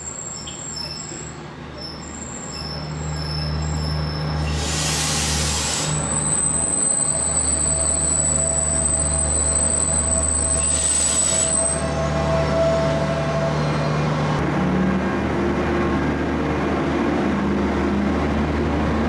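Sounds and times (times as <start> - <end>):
train wheels squealing: 0.0 - 14.1
train engine rumble: 0.0 - 19.0
hissing air burst: 4.6 - 6.0.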